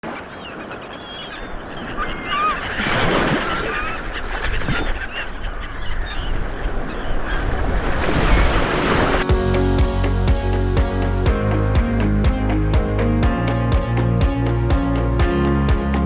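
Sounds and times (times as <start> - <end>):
birds chirping and squawking: 0.1 - 9.3.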